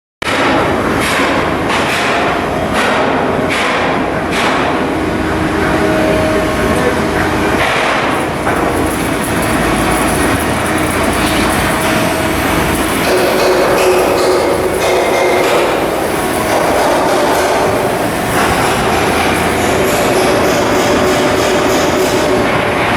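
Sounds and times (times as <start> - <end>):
steady mechanical din: 0.2 - 22.9
sharp metal knocks: 11.8 - 22.9.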